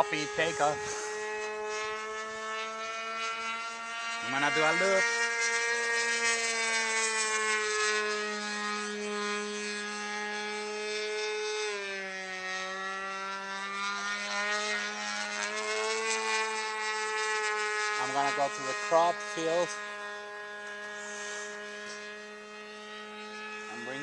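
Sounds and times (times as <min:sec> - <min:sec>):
model airplane engine: 0:00.0 - 0:24.0.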